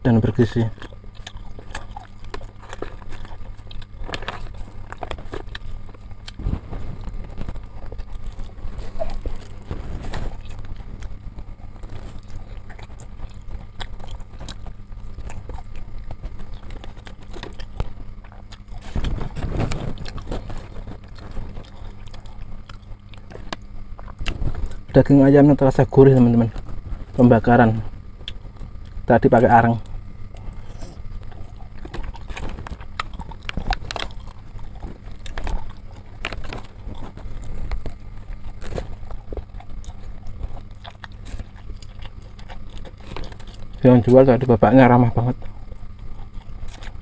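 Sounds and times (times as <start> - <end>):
person chewing food: 0.0 - 47.0
steady low hum: 0.0 - 47.0
skewer and wrapper rustles: 0.5 - 23.7.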